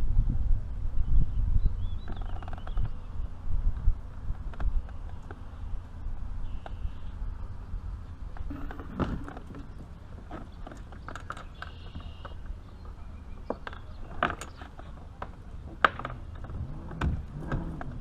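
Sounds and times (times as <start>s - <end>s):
low background rumble: 0.0s - 18.0s
fishing gear clicking and knocking: 8.3s - 18.0s.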